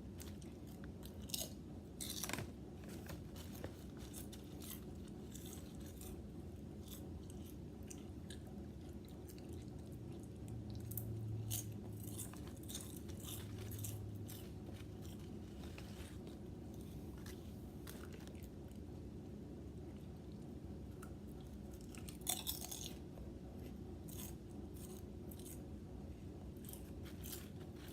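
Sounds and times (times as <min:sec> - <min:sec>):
low steady hum: 0:00.0 - 0:27.9
chips crunching: 0:00.1 - 0:09.8, 0:10.7 - 0:18.9, 0:21.0 - 0:23.1, 0:26.5 - 0:27.9.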